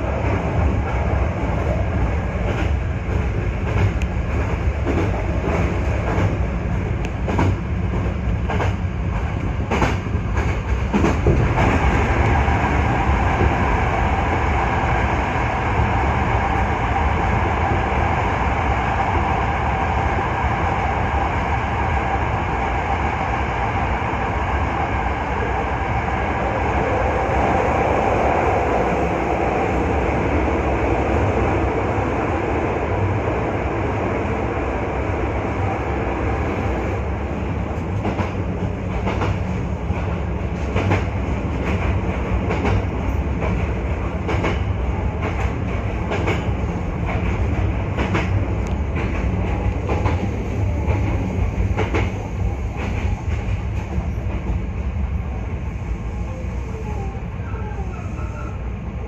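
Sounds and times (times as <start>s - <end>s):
train running rumble: 0.0s - 59.0s
train wheels clicking over track: 0.2s - 14.7s, 37.6s - 54.7s.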